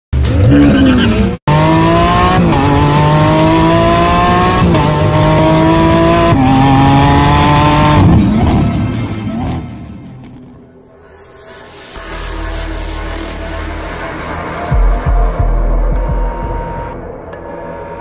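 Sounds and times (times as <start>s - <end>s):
car engine accelerating: 0.2s - 10.6s.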